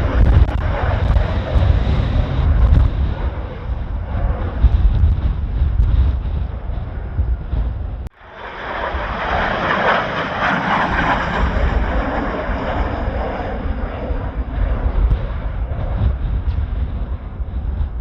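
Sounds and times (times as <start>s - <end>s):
jet engine passing: 0.0s - 18.0s
wind buffeting microphone: 0.0s - 18.0s.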